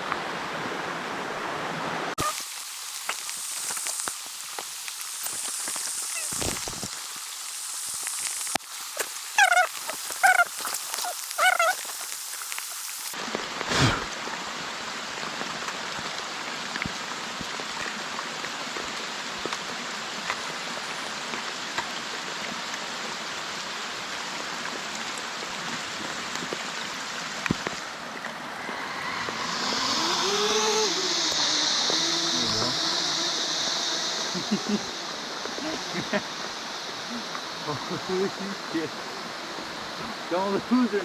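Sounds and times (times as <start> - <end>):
rain hissing: 2.0 - 41.0
faint rising and falling tones: 28.5 - 37.8.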